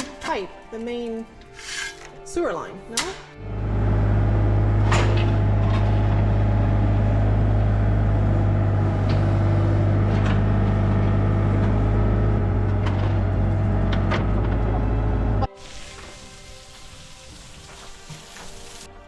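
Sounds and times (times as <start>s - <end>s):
engine humming: 3.4s - 15.5s.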